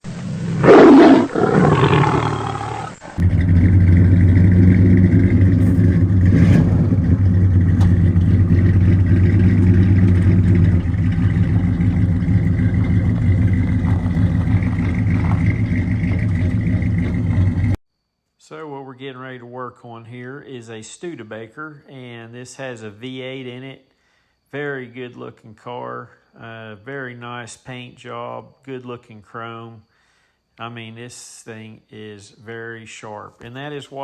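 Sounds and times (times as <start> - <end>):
loud roar falling in pitch: 0.6 - 10.2
engine idling: 3.0 - 17.8.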